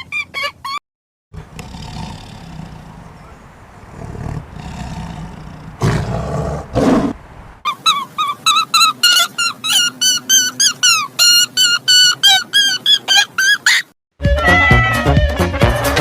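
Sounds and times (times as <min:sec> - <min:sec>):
animal roaring: 0:01.4 - 0:07.2
large animal growling: 0:01.4 - 0:07.2.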